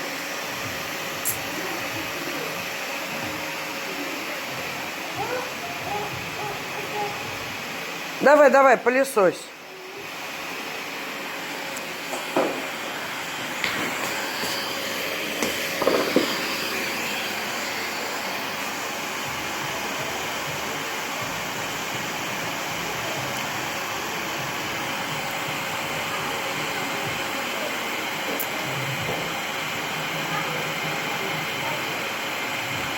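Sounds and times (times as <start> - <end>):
vacuum cleaner running: 0.0 - 32.9
knocks: 15.4 - 16.4.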